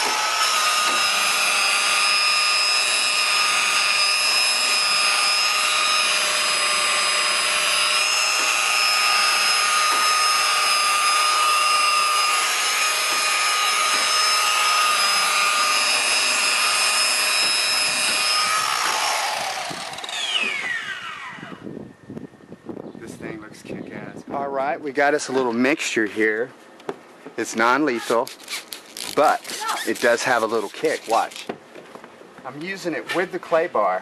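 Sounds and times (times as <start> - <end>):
electric buffer whining: 0.0 - 21.8.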